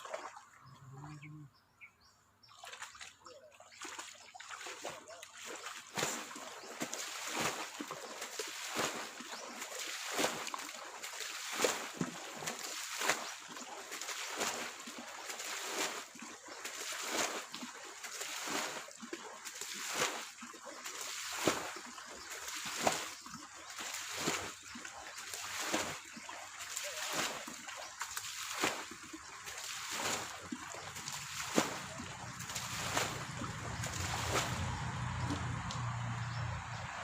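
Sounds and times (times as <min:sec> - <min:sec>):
water splashing: 0:00.0 - 0:01.5, 0:02.4 - 0:37.0.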